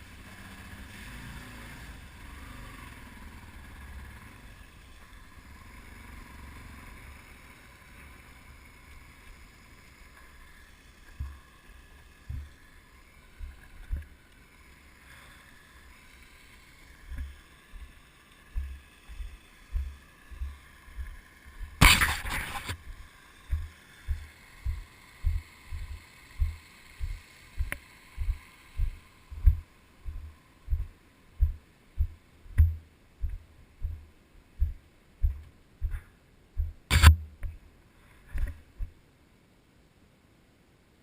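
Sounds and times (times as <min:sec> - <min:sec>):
heavy footsteps: 0:11.1 - 0:11.4, 0:12.3 - 0:12.5, 0:18.5 - 0:37.6
sharp click: 0:21.8 - 0:22.8, 0:36.9 - 0:37.6
rustling scrape: 0:21.8 - 0:22.9.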